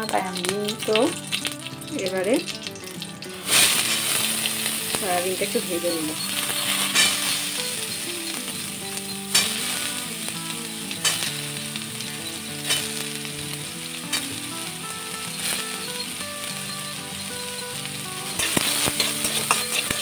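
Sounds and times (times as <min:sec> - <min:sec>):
food sizzling in hot oil: 0:00.0 - 0:20.0
spatula scraping a pan: 0:03.4 - 0:10.1, 0:11.0 - 0:13.2, 0:15.3 - 0:20.0.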